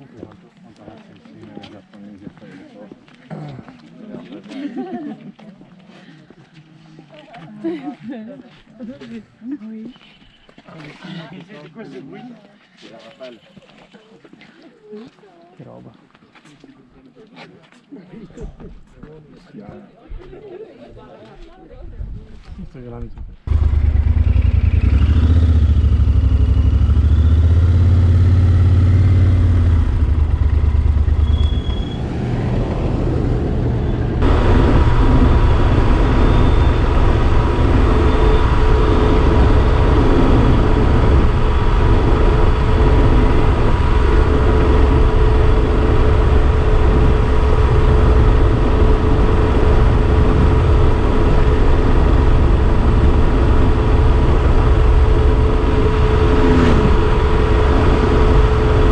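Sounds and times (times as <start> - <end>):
motorcycle engine running: 23.5 - 58.9
wind rumble: 23.5 - 58.9.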